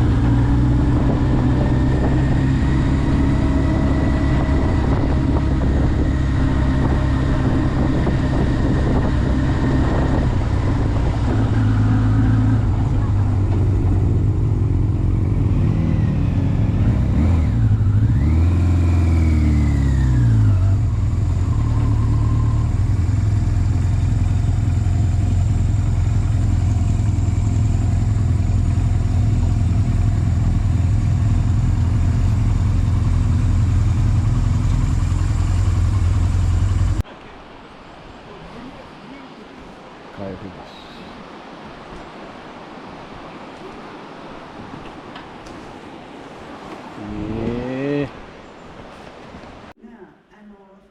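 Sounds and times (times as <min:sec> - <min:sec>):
motorcycle engine rumbling: 0:00.0 - 0:37.0.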